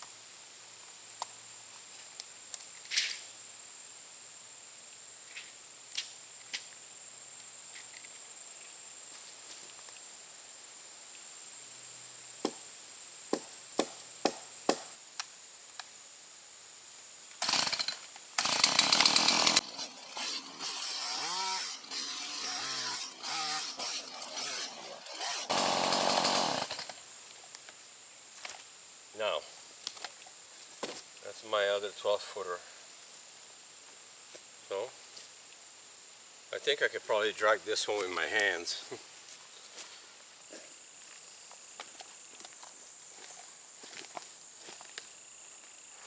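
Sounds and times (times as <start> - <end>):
chainsaw cutting log: 17.4 - 27.0.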